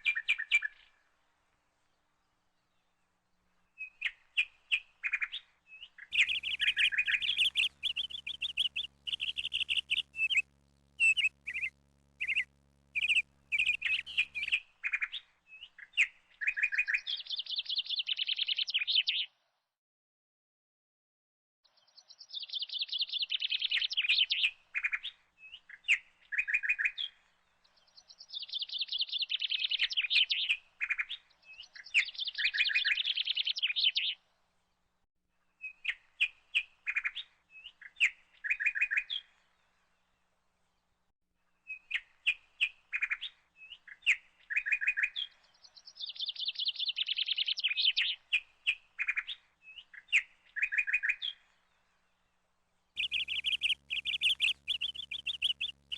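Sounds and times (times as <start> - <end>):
songbird trilling: 4.7 - 15.2, 46.0 - 51.4, 53.0 - 55.9.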